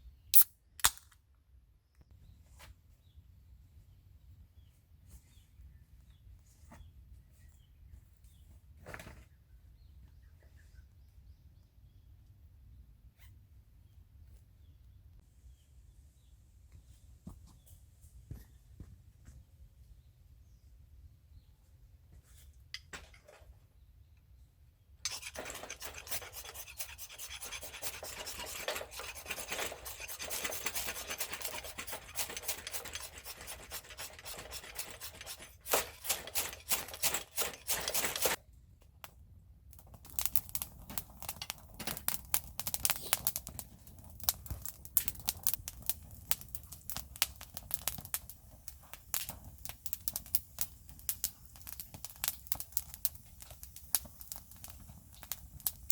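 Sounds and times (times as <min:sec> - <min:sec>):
rubbing and scraping: 0:25.1 - 0:38.4.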